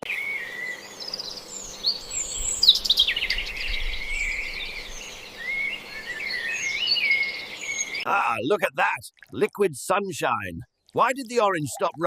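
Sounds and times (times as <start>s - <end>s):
birds chirping and trilling: 0.0s - 8.2s.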